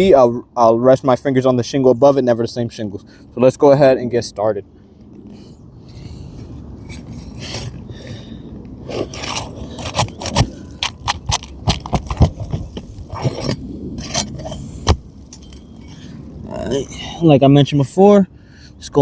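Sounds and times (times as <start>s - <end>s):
pry tool scraping shingles: 5.9s - 16.2s
sharp clicks and knocks: 9.2s - 15.6s.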